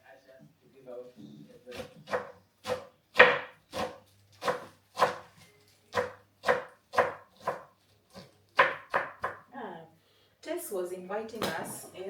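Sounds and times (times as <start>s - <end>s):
knife chopping on cutting board: 1.7s - 9.4s.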